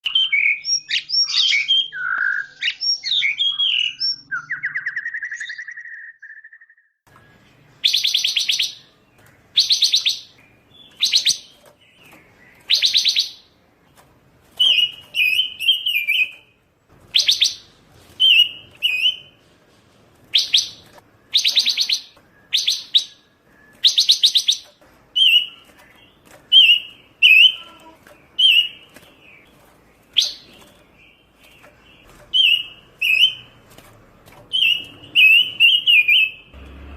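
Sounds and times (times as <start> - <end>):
bird singing trills: 0.0 - 13.6, 14.6 - 19.4, 20.3 - 33.6, 34.5 - 36.6.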